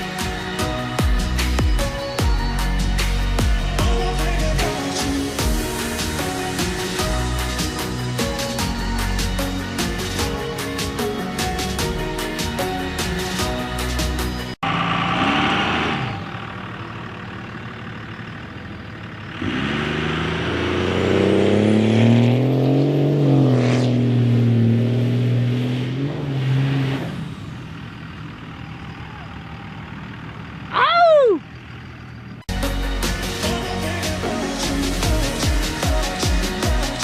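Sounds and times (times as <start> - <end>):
diesel truck engine revving: 0.0 - 37.0.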